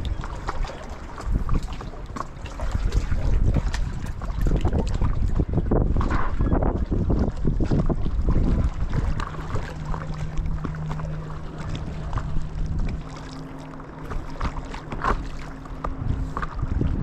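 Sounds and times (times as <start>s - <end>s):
paddle strokes: 0.0s - 17.0s
steady low hum: 0.0s - 17.0s
water lapping and splashing: 0.0s - 17.0s
wind rumbling on microphone: 0.0s - 17.0s
higher hum: 7.7s - 17.0s.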